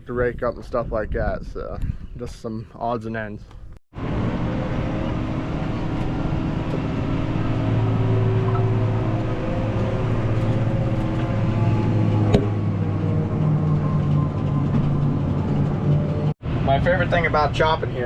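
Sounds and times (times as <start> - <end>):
tractor engine running: 4.0 - 16.3.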